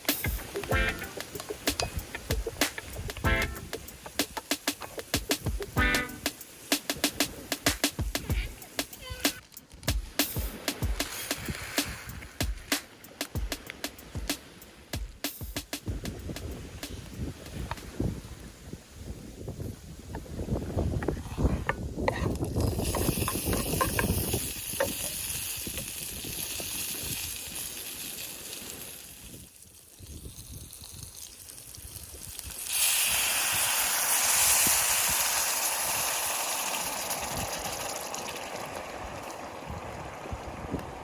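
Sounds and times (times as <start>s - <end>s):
wind rumbling on microphone: 0.0s - 5.9s, 15.8s - 36.2s, 36.8s - 41.0s
hissing surf on beach: 0.0s - 41.0s.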